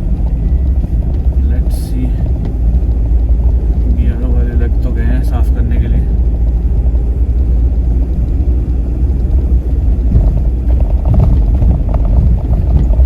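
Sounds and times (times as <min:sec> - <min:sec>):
engine and road rumble: 0:00.0 - 0:13.0
rattles and knocks: 0:06.0 - 0:13.0.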